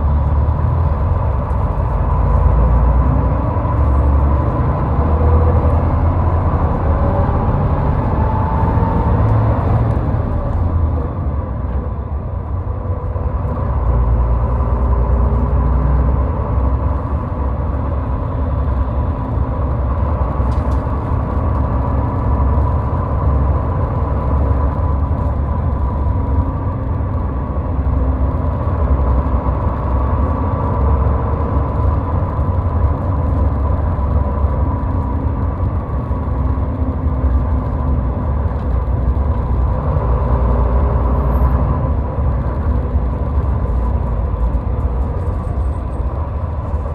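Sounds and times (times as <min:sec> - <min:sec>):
car driving at highway speed: 0:00.0 - 0:46.9.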